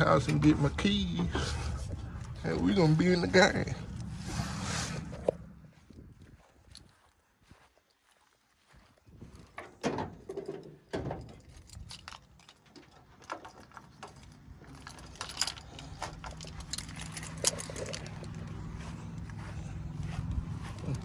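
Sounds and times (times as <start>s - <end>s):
keys jingling: 11.1s - 18.7s.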